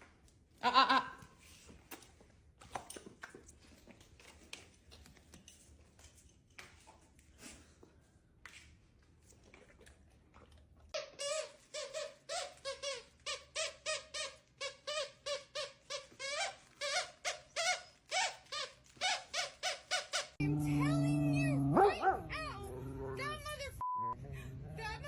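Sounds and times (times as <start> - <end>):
dog whining in high yelps: 20.4 - 23.3.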